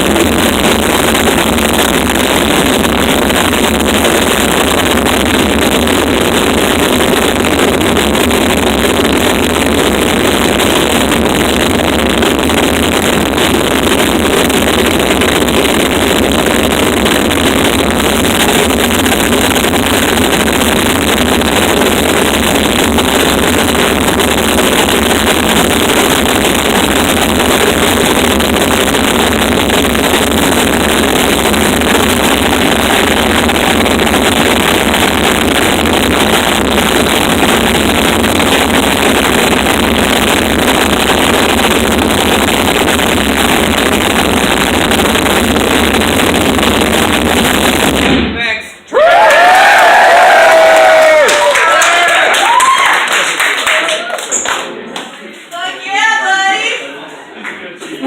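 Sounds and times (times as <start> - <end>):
distorted static noise music: 0.0 - 57.0.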